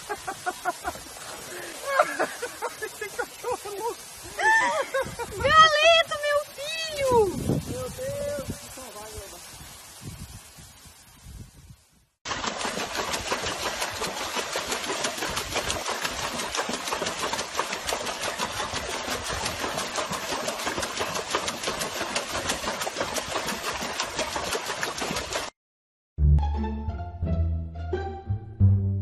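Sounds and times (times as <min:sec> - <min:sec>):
dog paddling in water splashing: 0:12.3 - 0:25.5.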